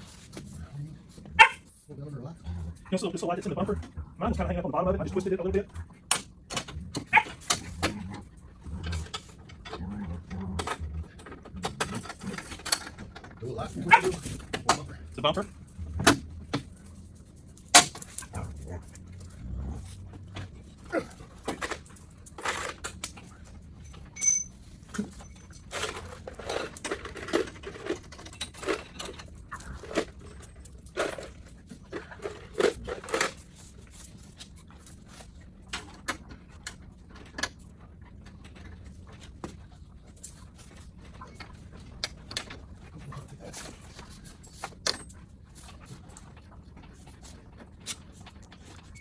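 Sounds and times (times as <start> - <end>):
small metal parts clattering: 20.5 - 33.7.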